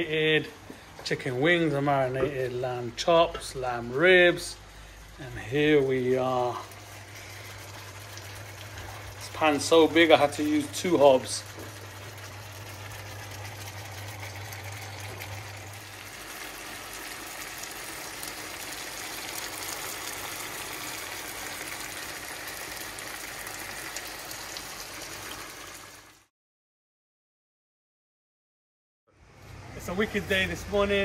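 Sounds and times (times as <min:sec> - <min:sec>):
food bubbling and sizzling: 0:03.8 - 0:26.3.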